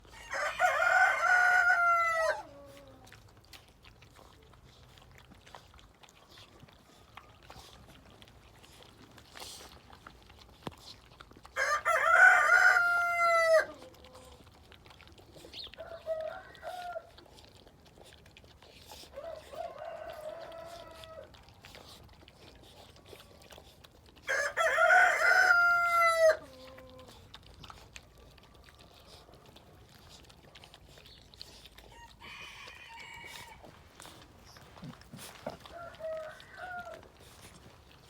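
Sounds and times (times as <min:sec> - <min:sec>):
rooster crowing: 0:00.1 - 0:02.5, 0:11.6 - 0:13.7, 0:15.8 - 0:17.1, 0:19.2 - 0:21.3, 0:24.3 - 0:26.5, 0:31.9 - 0:33.7, 0:35.6 - 0:37.1.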